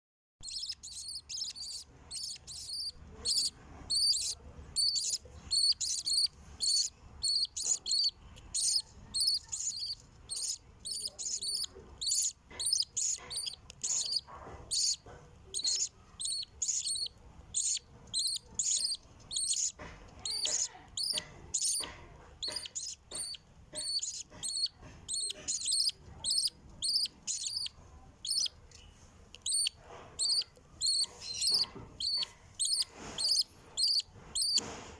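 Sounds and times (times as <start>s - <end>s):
nestling birds begging chirps: 0.4s - 34.8s.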